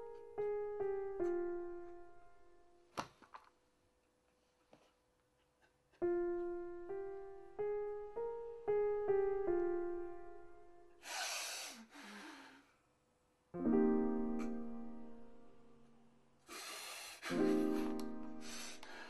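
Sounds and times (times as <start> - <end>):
slow piano notes: 0.0 - 2.9, 6.0 - 11.1, 13.6 - 19.0
harsh breathy rush of noise: 11.0 - 12.4, 16.5 - 17.3.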